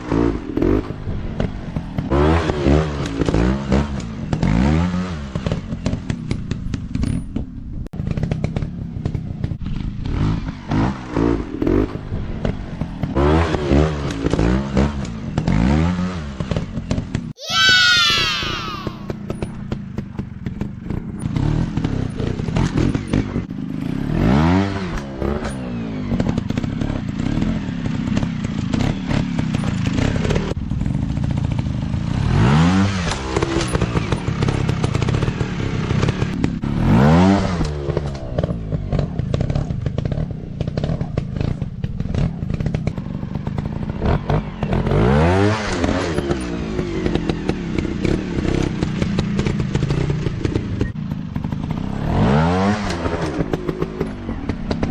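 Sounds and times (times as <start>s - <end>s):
dirt bike engines revving: 12.8s - 19.5s, 32.0s - 54.9s.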